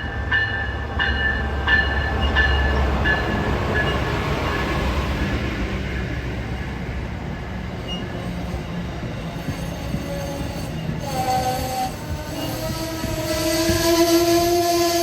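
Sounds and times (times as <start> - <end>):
train rumbling by: 0.0 - 15.0.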